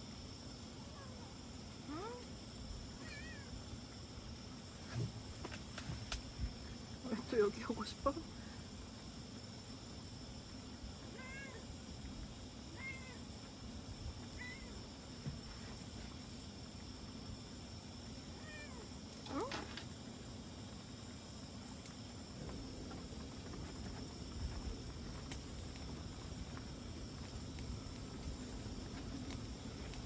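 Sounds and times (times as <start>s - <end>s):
cat meowing: 3.0s - 3.5s, 11.2s - 11.6s, 12.8s - 13.2s, 18.4s - 18.9s.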